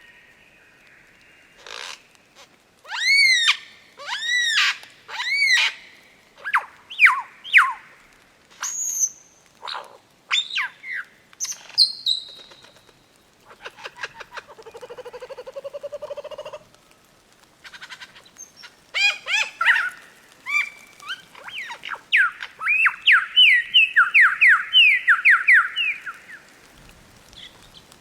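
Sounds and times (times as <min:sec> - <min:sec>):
bird calling loudly: 0:17.7 - 0:26.5.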